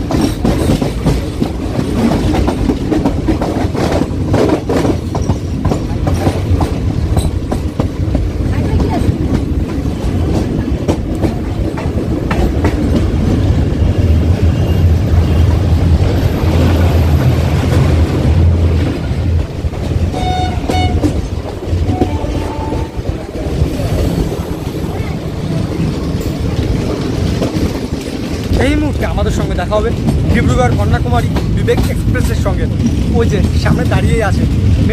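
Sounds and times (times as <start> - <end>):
train clickety-clack on rails: 0.0 - 34.9
train horn blasts: 20.1 - 21.2, 21.8 - 23.3.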